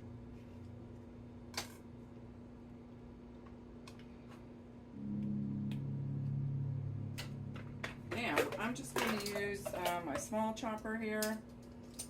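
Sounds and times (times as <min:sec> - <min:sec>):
appliance humming: 0:04.7 - 0:10.8.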